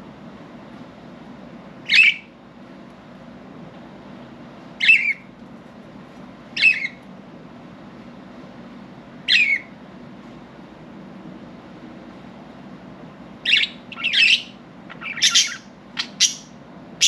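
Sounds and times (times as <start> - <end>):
steady low hum: 0.0 - 17.0
budgerigar squawking: 13.5 - 16.5.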